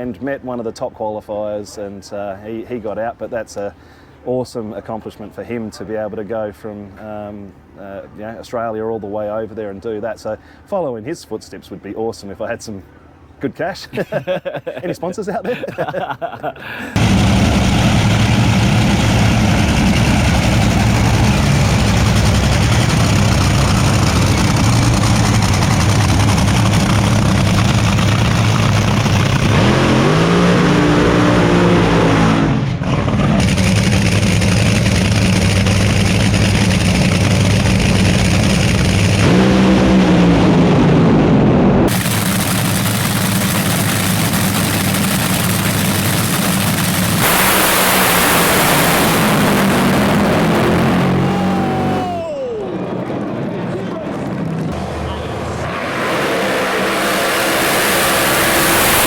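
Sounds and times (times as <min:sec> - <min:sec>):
drag racing car engines revving: 0:17.0 - 0:52.1, 0:52.7 - 0:59.0.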